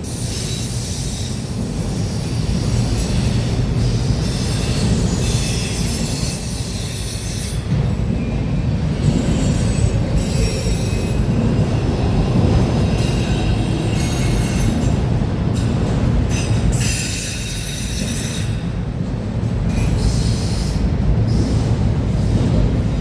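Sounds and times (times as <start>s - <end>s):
train cars rumbling on rails: 0.0s - 23.0s.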